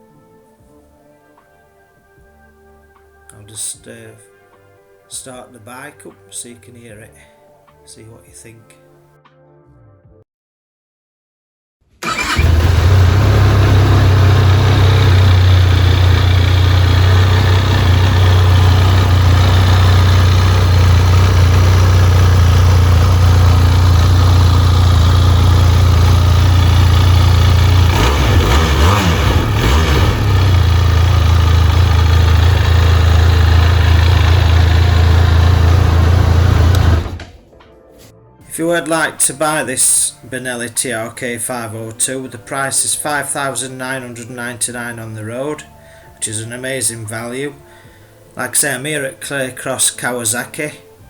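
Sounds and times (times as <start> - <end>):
motorcycle engine idling: 12.1 - 37.3.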